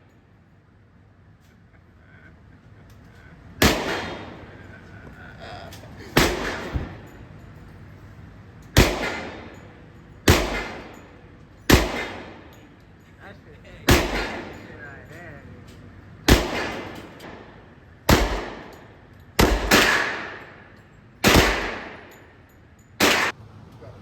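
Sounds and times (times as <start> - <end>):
gunshots with echo: 3.6 - 4.8, 6.1 - 7.2, 8.8 - 12.6, 13.9 - 14.8, 16.3 - 22.2, 23.0 - 23.3.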